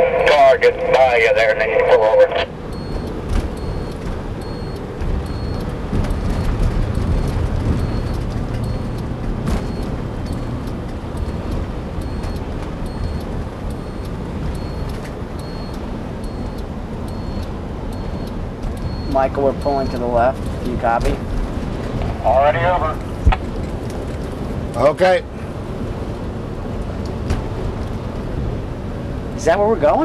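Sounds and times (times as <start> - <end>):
bus engine and road rumble: 0.0 - 30.0
turn signal clicking: 2.6 - 20.8.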